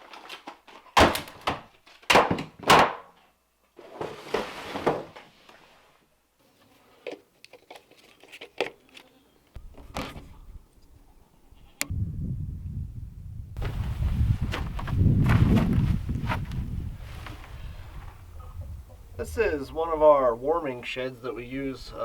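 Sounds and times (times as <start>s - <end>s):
sharp knocks and thuds: 1.0s - 3.1s
low steady rumble: 11.9s - 20.5s.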